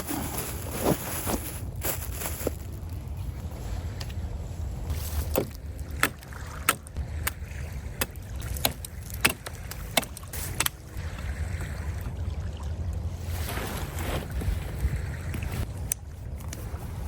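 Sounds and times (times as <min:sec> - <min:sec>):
surf on lake shore: 0:03.4 - 0:17.0.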